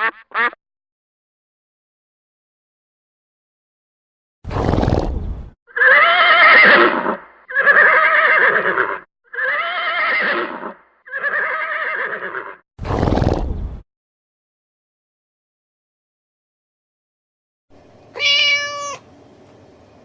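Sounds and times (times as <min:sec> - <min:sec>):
horse blowing breath: 0:04.5 - 0:05.5, 0:12.8 - 0:13.6
horse whinnying: 0:05.7 - 0:13.3, 0:18.1 - 0:19.0.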